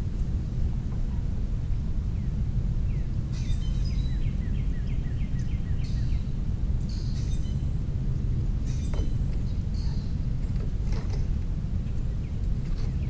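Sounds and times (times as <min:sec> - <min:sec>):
low outdoor rumble: 0:00.0 - 0:13.0
songbird singing down-slurred notes: 0:02.1 - 0:10.3.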